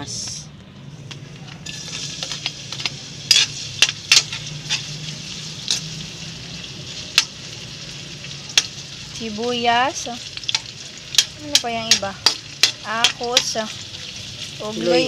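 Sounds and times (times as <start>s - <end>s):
vegetables sizzling in hot oil: 1.6s - 15.0s
metal spatula clicking on pan: 10.4s - 13.6s.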